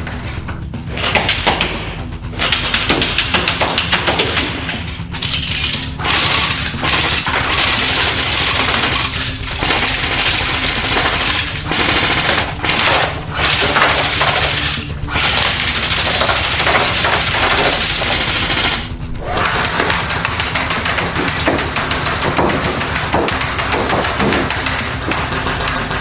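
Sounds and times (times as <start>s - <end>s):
airsoft rifle firing full auto: 5.2s - 19.0s.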